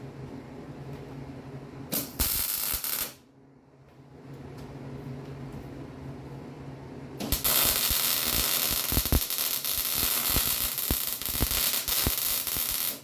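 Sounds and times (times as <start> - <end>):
arc welder crackling sizzle: 1.9 - 3.2, 7.2 - 13.0
sharp welding pops: 1.9 - 3.2, 7.2 - 13.0.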